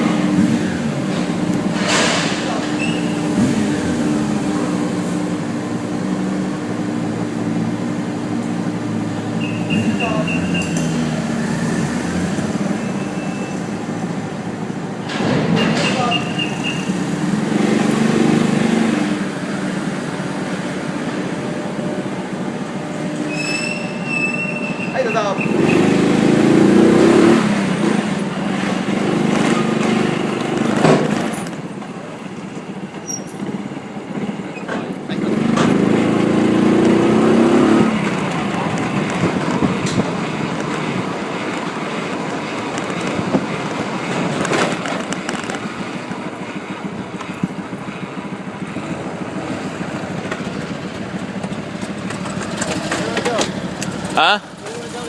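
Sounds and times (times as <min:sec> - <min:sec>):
engine drone: 0:00.0 - 0:55.0
low vehicle rumble: 0:00.0 - 0:55.0
road and wind noise: 0:00.0 - 0:55.0
high-pitched squeal: 0:01.8 - 0:03.4, 0:15.6 - 0:17.1, 0:21.5 - 0:27.3
knocks and rattles: 0:29.3 - 0:31.9.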